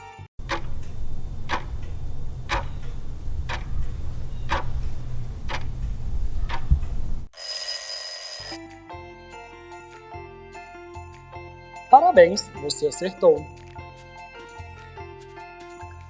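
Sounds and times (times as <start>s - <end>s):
bell ringing: 7.4s - 8.6s.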